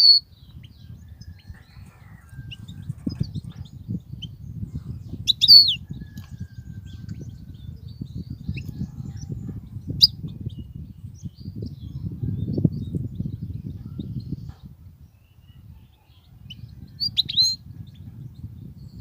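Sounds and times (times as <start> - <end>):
goldfinch chirping: 5.0 - 5.8.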